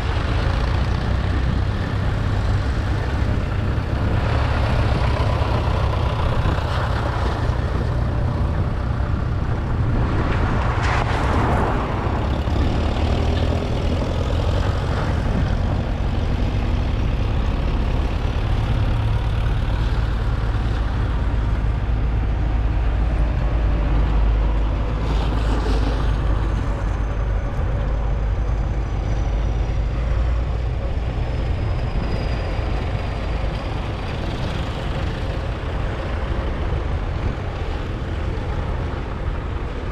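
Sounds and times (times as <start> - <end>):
diesel tractor engines rumbling: 0.0 - 39.9.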